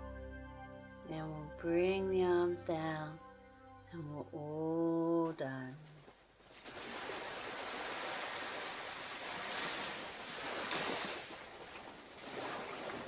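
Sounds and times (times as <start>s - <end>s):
waves breaking on beach: 6.5s - 13.0s.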